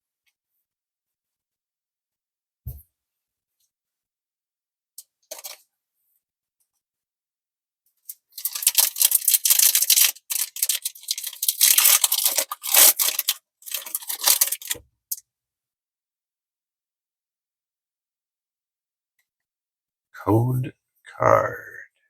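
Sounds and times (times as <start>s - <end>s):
foil wrapper crinkling and tearing: 8.3s - 14.8s.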